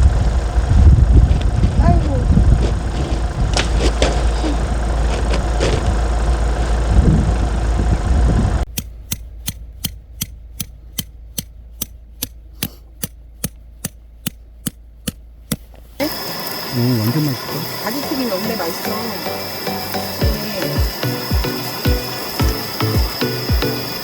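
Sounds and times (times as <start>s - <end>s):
wind buffeting microphone: 0.0s - 8.7s
steady ticking: 8.6s - 24.0s.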